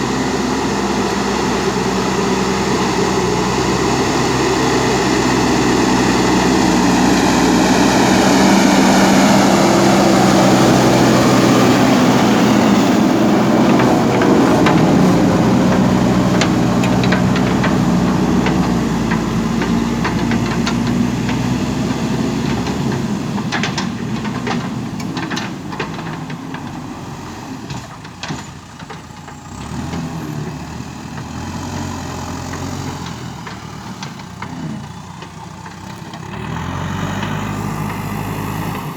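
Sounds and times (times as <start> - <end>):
diesel engine running: 0.0 - 38.9
knocks and clatters: 9.8 - 31.5.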